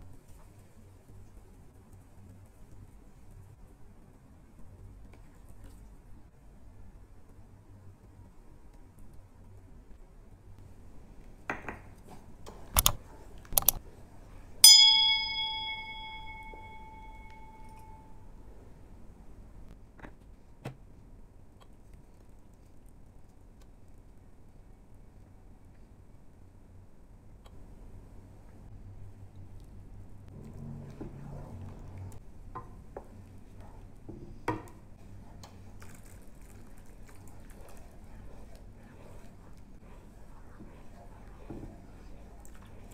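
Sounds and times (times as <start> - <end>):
mouse clicks: 12.8 - 13.8
spoon clinking against pot: 14.6 - 18.0
bright bell ding: 14.6 - 18.2
soup simmering in pot: 30.3 - 42.9.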